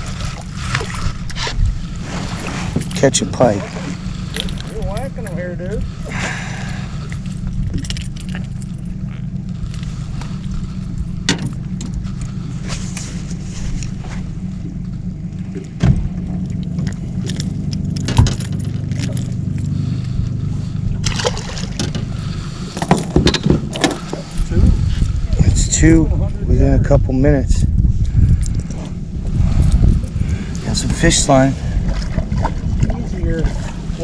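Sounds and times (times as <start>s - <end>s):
boat motor humming: 0.0s - 34.0s
sharp knocks and clatters: 22.8s - 24.2s.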